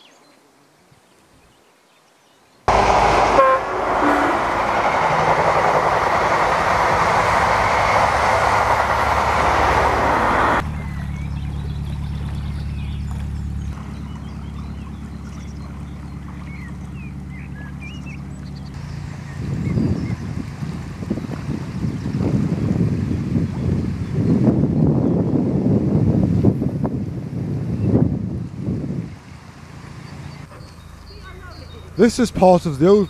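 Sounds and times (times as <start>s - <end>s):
train passing at speed: 2.7s - 11.2s
boat diesel engine running: 2.7s - 24.2s, 27.0s - 33.0s
birds singing: 10.6s - 25.4s, 29.6s - 33.0s.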